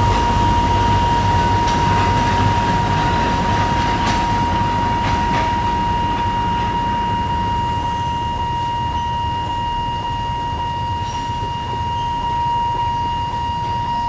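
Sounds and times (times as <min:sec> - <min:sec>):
wheels clanking on rails: 0:00.0 - 0:07.4
diesel train engine rumble: 0:00.0 - 0:14.0
steady high-pitched tone: 0:00.0 - 0:14.0.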